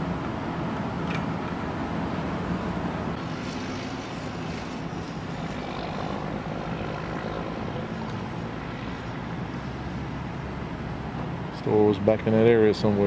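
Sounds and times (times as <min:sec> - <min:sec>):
engine running low rumble: 0:00.0 - 0:13.0
light hiss: 0:03.2 - 0:06.5.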